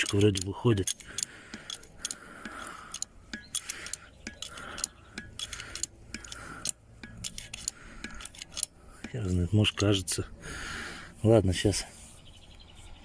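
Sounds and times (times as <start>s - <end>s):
jack clicking and clanking: 0.0s - 10.0s.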